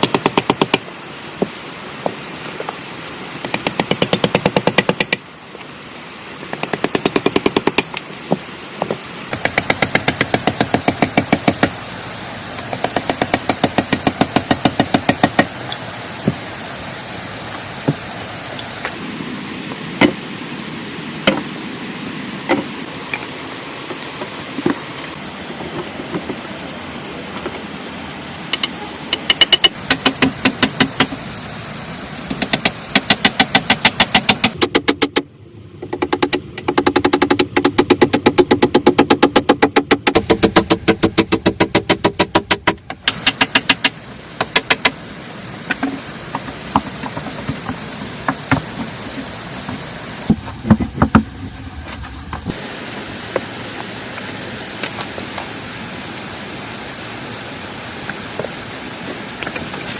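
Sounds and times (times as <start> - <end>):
steady hiss: 0.0 - 59.9
sharp knocks: 32.3 - 45.0, 50.3 - 51.4.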